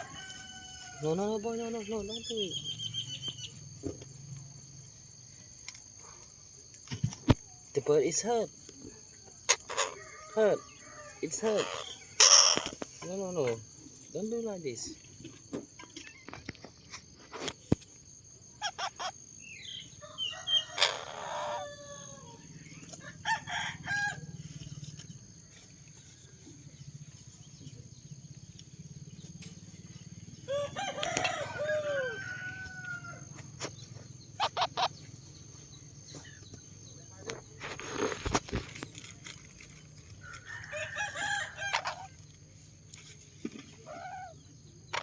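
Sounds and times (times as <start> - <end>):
bird calling: 33.6 - 36.5, 43.6 - 45.0.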